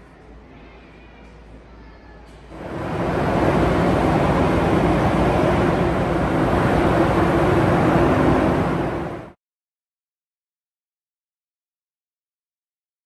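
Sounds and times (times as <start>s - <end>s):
train rushing: 2.3s - 9.4s
low hum: 2.5s - 9.4s.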